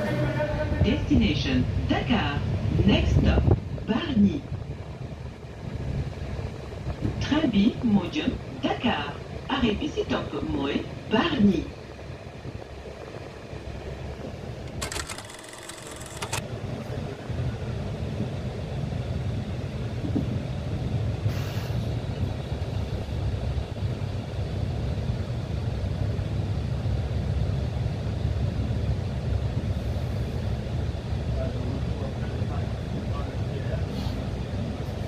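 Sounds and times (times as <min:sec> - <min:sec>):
train rumble from inside carriage: 0:00.0 - 0:35.0
rattle of clicks: 0:14.6 - 0:16.4.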